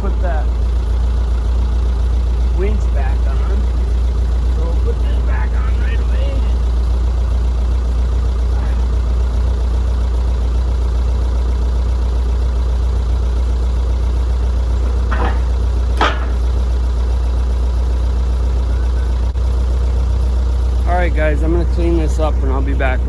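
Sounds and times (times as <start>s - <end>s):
engine idling: 0.0s - 23.0s
short knocks: 14.7s - 16.6s.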